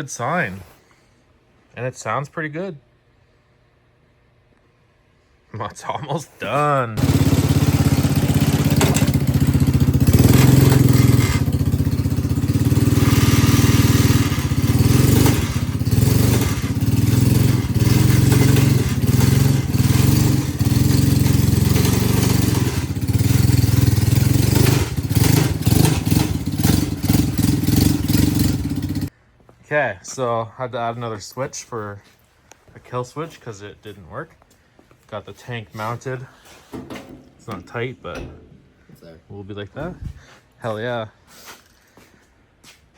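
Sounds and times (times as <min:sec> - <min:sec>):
lawnmower engine running: 0:07.0 - 0:29.1, 0:36.7 - 0:38.8
loose parts and chain rattling: 0:07.5 - 0:27.8, 0:35.8 - 0:39.2.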